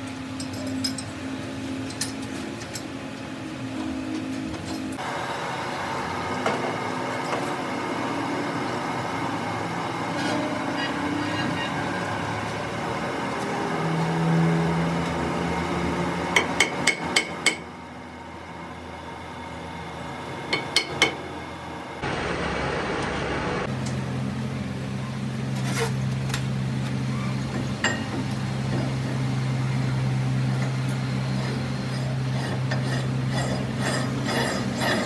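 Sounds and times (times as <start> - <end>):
workshop noise: 22.0 - 23.7.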